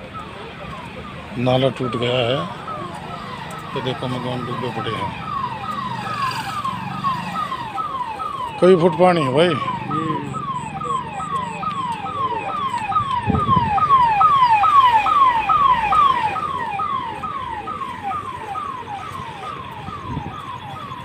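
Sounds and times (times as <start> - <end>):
emergency vehicle siren: 0.0 - 21.0.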